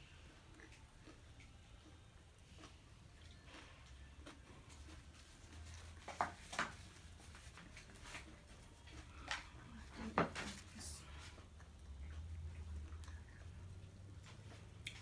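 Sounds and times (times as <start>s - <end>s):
faint low hum: 0.0s - 15.0s
chewing and food handling clicks: 0.2s - 6.0s, 11.4s - 15.0s.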